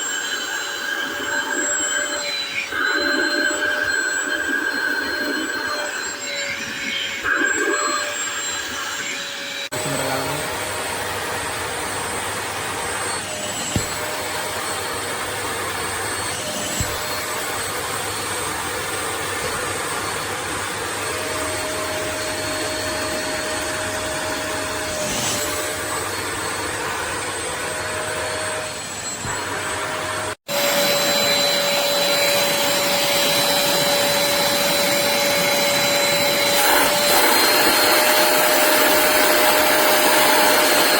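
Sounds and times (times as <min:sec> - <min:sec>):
wet vacuum suction and motor whine: 0:00.0 - 0:40.9.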